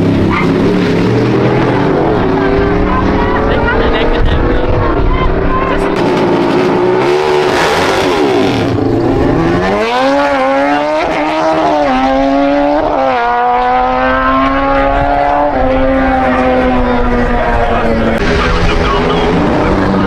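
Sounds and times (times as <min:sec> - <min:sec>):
pickup truck engine revving: 0:05.8 - 0:20.0.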